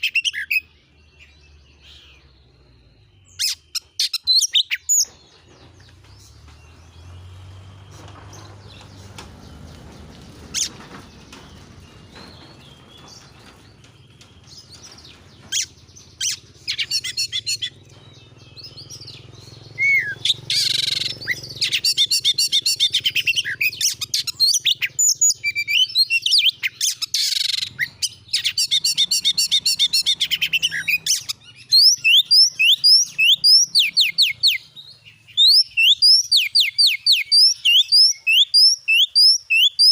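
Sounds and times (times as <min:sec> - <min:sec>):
songbird singing rapid whistles: 0:00.0 - 0:05.3, 0:14.2 - 0:39.9.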